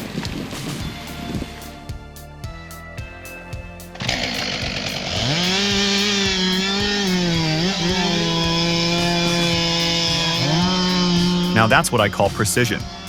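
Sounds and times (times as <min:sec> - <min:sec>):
chainsaw revving: 0:04.0 - 0:13.0.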